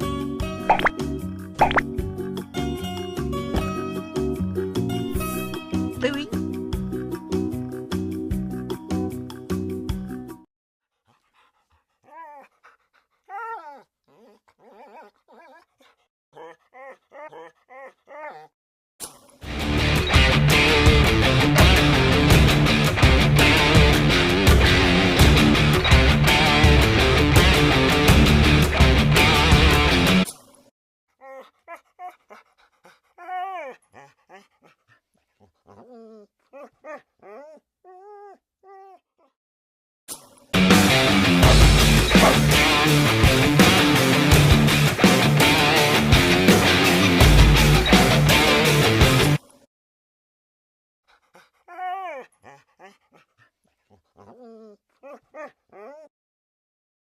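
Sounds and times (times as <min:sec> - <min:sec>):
dog yelping: 0:12.0 - 0:18.6, 0:31.2 - 0:32.4, 0:33.2 - 0:39.3, 0:42.2 - 0:42.4, 0:51.7 - 0:56.1
dog whining: 0:13.3 - 0:15.8, 0:16.4 - 0:18.5, 0:35.4 - 0:39.0, 0:53.9 - 0:56.1.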